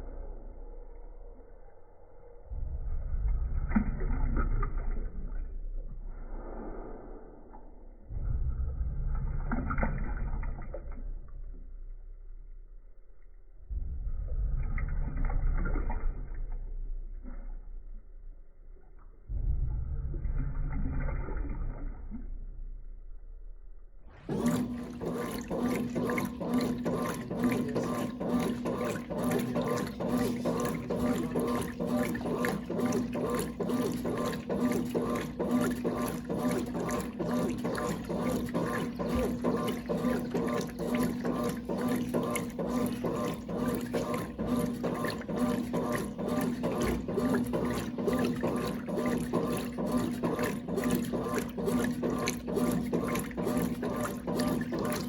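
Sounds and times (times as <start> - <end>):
washing machine hum: 0.0 - 55.0
water pouring into washing machine: 2.5 - 23.5, 24.1 - 55.0.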